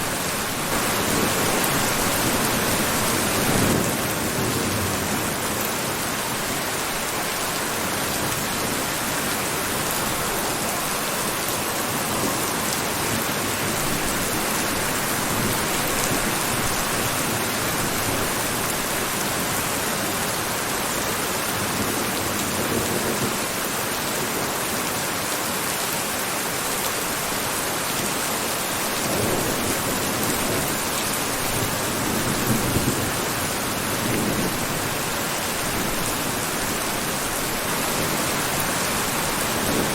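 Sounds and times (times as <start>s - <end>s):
heavy rain hissing: 0.0s - 21.9s.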